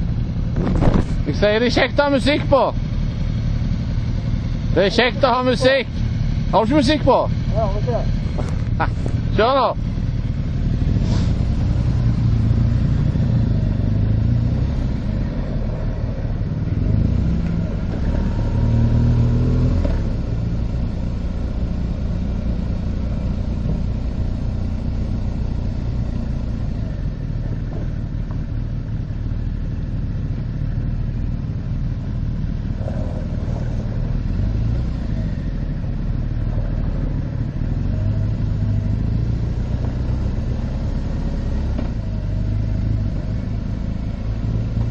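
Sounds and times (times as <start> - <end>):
wind noise: 0.0 - 1.3
motorcycle engine: 0.0 - 44.9.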